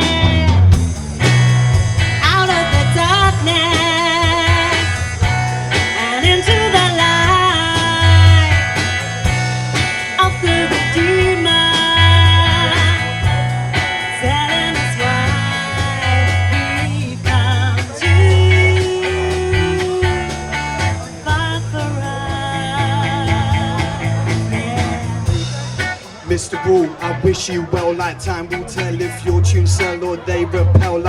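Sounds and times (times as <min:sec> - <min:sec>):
bass line: 0:00.0 - 0:31.0
melodic lead line: 0:00.0 - 0:31.0
steady drums: 0:00.0 - 0:31.0.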